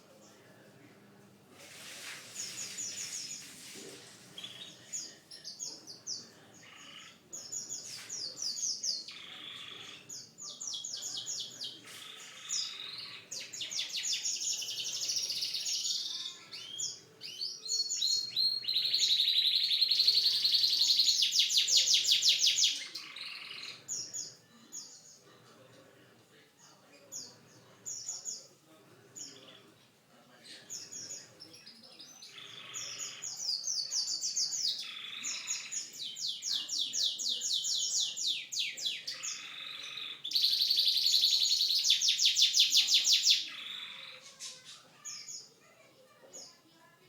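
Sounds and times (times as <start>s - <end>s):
canary singing trills: 4.4s - 25.1s, 30.7s - 45.6s.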